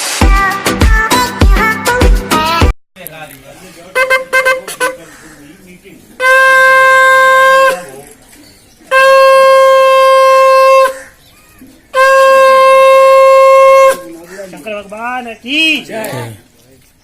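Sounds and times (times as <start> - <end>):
conch shell blasts: 4.0 - 5.0, 6.2 - 8.0, 8.9 - 11.0, 12.0 - 14.1.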